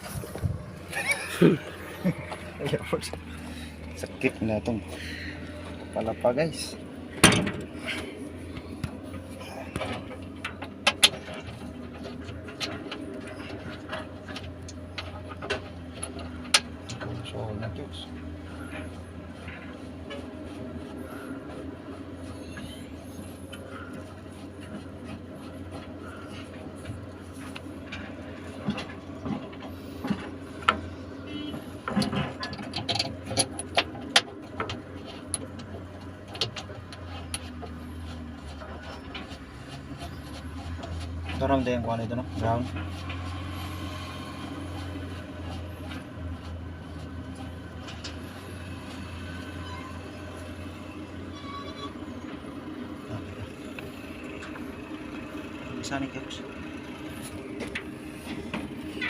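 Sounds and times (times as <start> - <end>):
engine humming: 0.0 - 59.0
sharp clicks and knocks: 7.1 - 17.4, 23.5 - 41.6.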